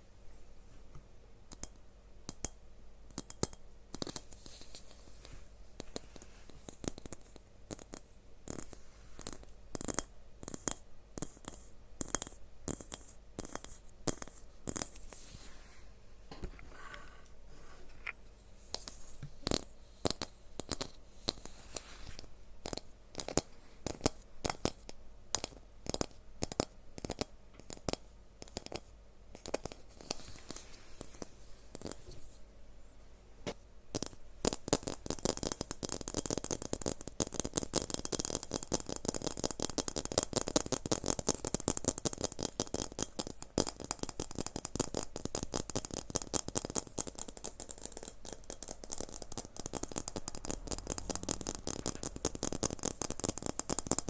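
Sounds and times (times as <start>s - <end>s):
sharp clicks and taps: 33.4s - 54.0s
rapid crackling: 46.6s - 54.0s.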